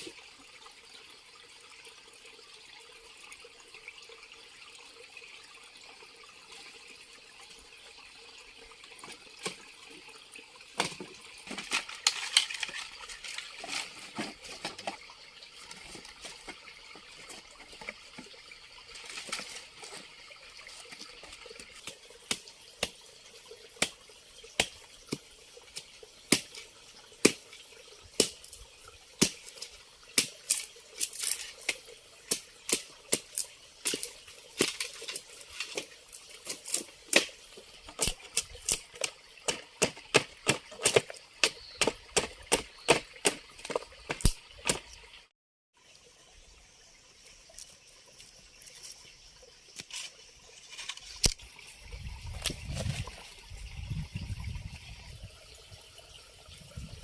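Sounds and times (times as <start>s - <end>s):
water running: 5.6s - 45.3s.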